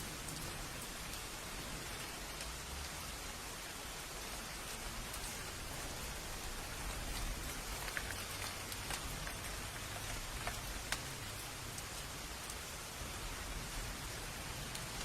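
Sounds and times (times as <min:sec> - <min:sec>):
raindrops ticking close by: 0:00.0 - 0:15.0
steady rain: 0:00.0 - 0:15.0.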